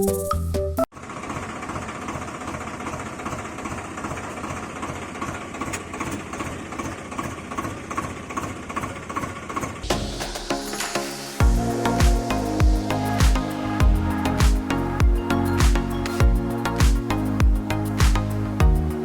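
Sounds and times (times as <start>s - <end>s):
music: 0.0s - 0.9s, 9.9s - 19.0s
vehicle engine idling: 11.4s - 19.0s.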